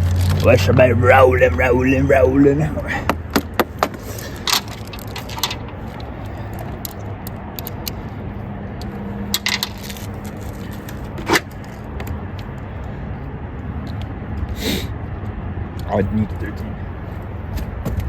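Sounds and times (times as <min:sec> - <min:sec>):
metal hand tools clinking: 0:04.0 - 0:06.1, 0:09.4 - 0:10.1.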